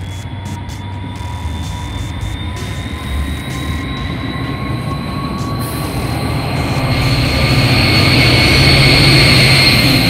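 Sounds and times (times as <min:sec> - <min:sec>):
locomotive engine: 0:00.0 - 0:10.0
train rumble: 0:00.0 - 0:10.0
wheel squeal: 0:00.0 - 0:10.0.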